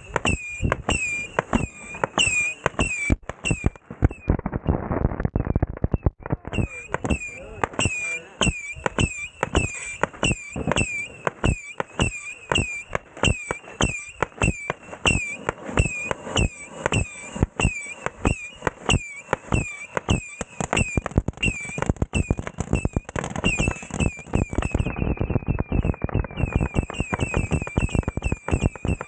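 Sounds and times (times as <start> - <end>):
firework crackle: 0.0 - 29.0
firework shots whistling: 0.0 - 29.0.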